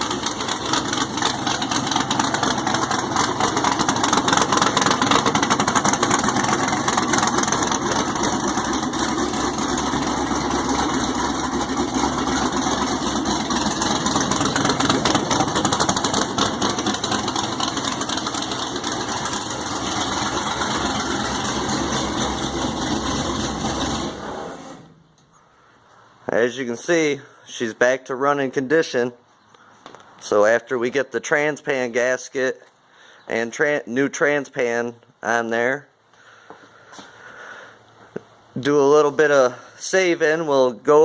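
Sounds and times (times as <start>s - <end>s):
race car engine idling: 0.0s - 25.5s.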